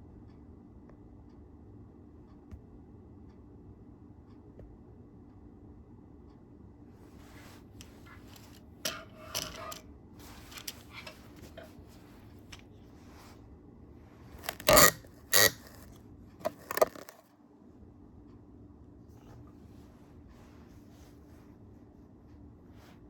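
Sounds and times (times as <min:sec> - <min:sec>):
camera handling clicks and scrapes: 0:14.4 - 0:17.2.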